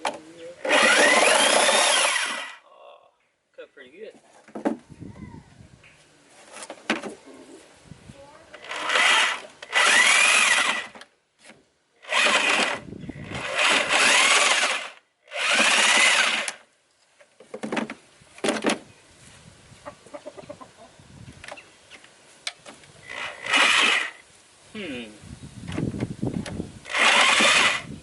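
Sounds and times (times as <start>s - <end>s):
power tool cutting: 0.6s - 2.6s, 8.6s - 11.0s, 12.0s - 16.6s, 23.1s - 24.2s, 26.8s - 27.9s.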